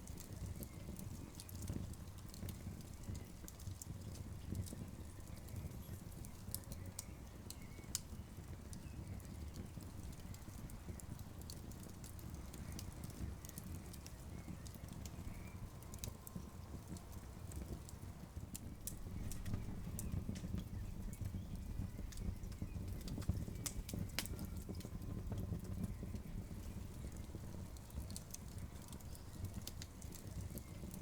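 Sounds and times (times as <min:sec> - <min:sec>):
low rumble of campfire: 0:00.0 - 0:31.0
wood crackling and popping: 0:00.0 - 0:31.0.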